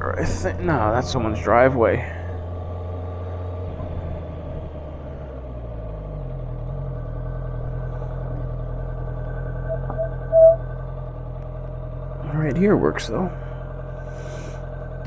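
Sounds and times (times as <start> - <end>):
motorcycle engine running: 2.2 - 15.0
brief high tone: 9.6 - 10.6.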